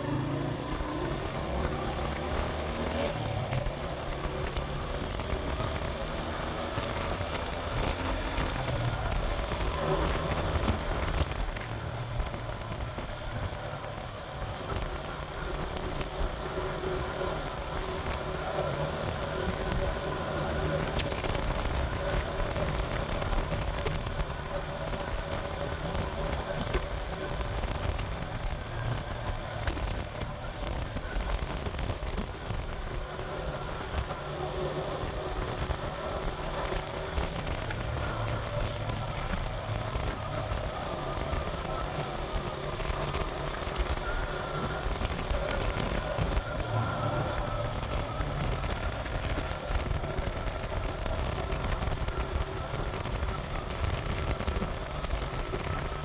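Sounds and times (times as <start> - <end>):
motorcycle engine running: 0.0 - 56.0
wind rumble on microphone: 0.0 - 56.0.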